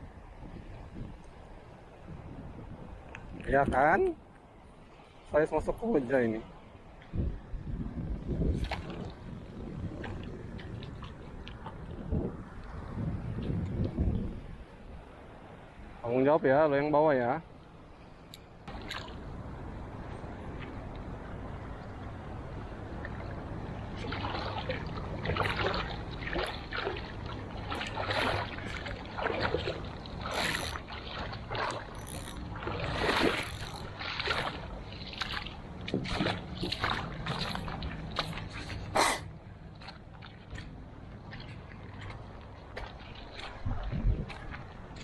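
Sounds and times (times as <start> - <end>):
water sloshing and splashing: 8.3 - 16.0, 17.6 - 45.0
steady low rumble: 18.6 - 45.0.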